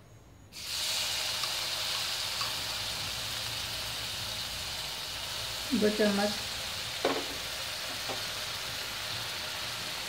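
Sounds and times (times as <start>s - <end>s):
paste sizzling in hot oil: 0.5s - 10.0s.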